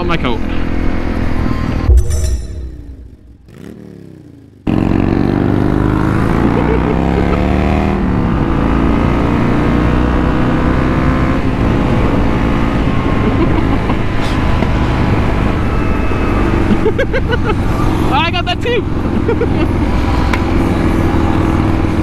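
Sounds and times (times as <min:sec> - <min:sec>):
motorcycle engine accelerating: 0:01.8 - 0:16.9.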